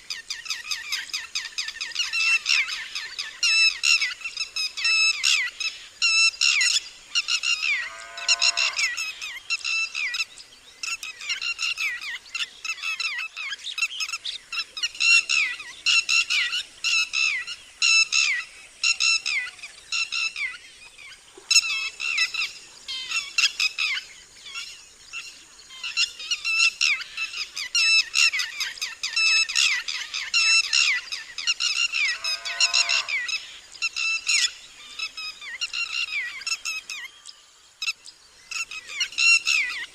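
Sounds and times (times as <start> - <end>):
lapwing calling: 7.3 - 9.4, 26.8 - 37.1.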